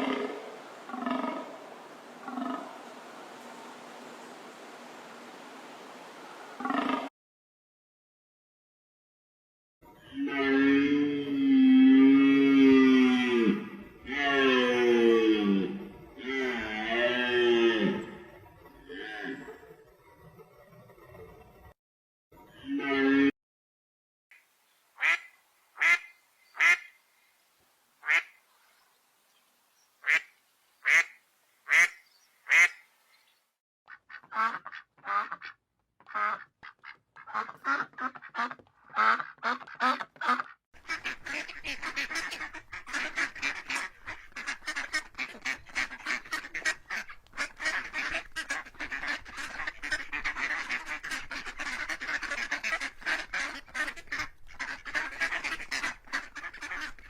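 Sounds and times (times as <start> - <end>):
ducks quacking: 0.0 - 5.6, 6.3 - 7.1, 25.0 - 26.9, 28.0 - 28.4, 30.0 - 32.8, 33.9 - 57.0.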